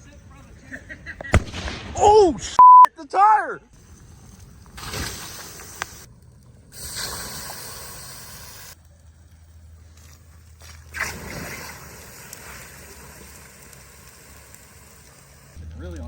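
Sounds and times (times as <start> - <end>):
hissing: 3.8 - 8.8, 10.9 - 15.7
water splashing on burning tire: 3.8 - 16.0.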